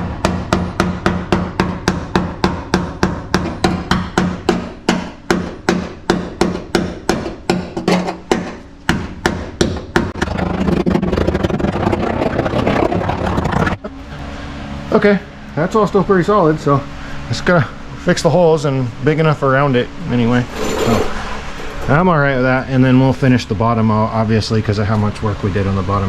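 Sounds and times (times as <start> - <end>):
tool scraping rusty metal: 20.4 - 21.9.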